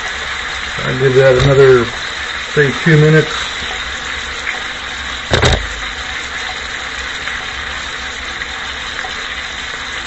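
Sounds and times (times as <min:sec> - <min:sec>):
steak sizzling in a skillet: 0:00.0 - 0:10.0
knock: 0:05.3 - 0:05.8
low hum: 0:05.3 - 0:06.2.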